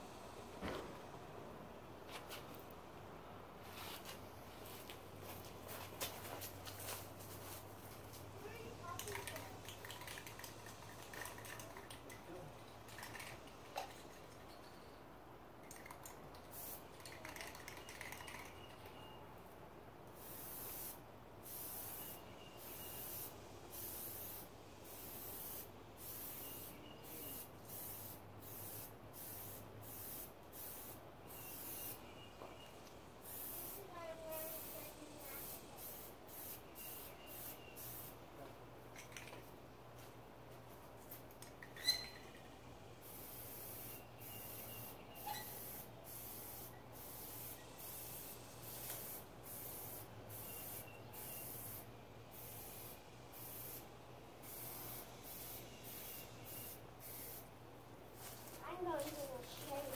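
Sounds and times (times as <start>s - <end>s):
aerosol can spraying: 6.4s - 12.1s, 16.5s - 18.5s, 20.2s - 32.0s, 33.2s - 38.2s, 43.0s - 57.5s, 58.2s - 59.9s.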